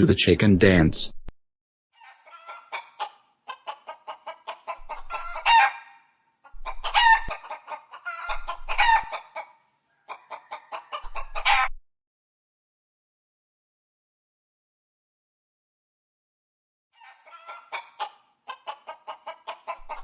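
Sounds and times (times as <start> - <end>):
chickens clucking and squawking: 2.0 - 11.8, 17.0 - 20.0.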